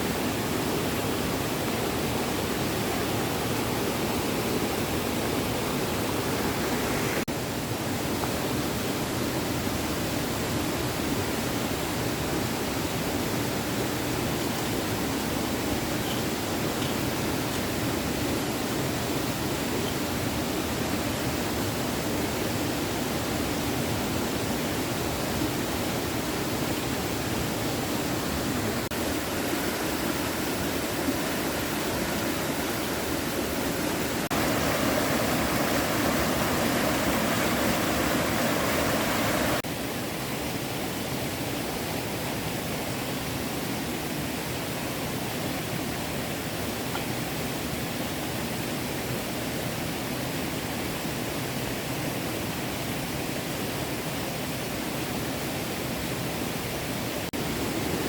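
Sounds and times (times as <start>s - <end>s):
small stream running: 0.0s - 58.0s.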